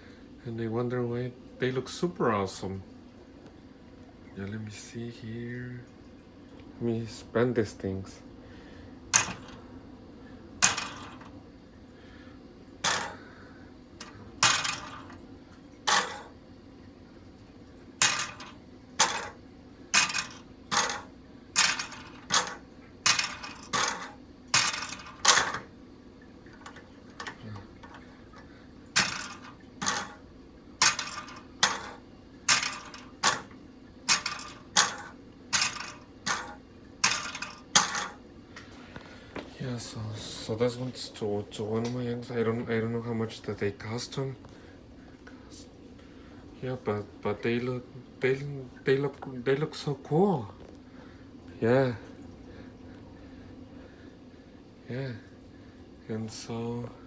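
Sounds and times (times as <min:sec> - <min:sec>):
small models clicking on hard surface: 0:09.2 - 0:09.6, 0:10.6 - 0:11.3, 0:12.8 - 0:13.2, 0:14.0 - 0:15.2, 0:15.9 - 0:16.3, 0:18.0 - 0:19.4, 0:20.0 - 0:25.7, 0:29.0 - 0:30.2, 0:30.8 - 0:33.5, 0:34.1 - 0:38.2.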